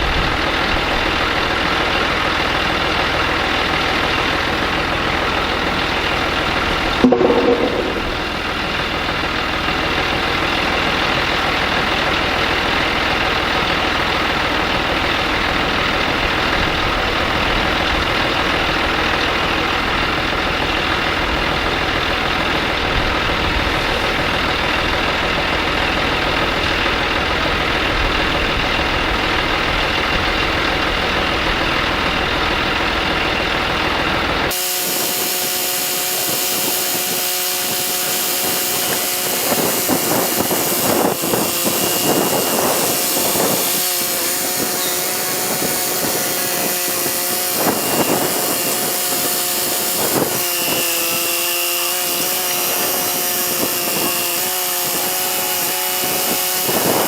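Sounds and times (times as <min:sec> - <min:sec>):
sharp knock: 0:07.0 - 0:08.3.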